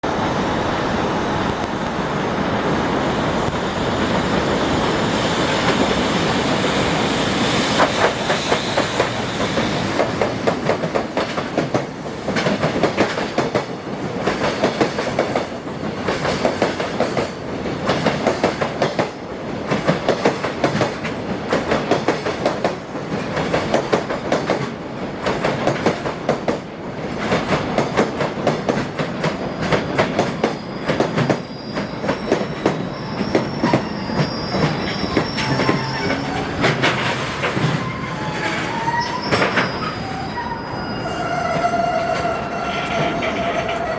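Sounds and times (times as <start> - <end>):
freight train rumbling past: 0.0 - 43.9
wagon wheels clacking over rail joints: 34.6 - 39.8.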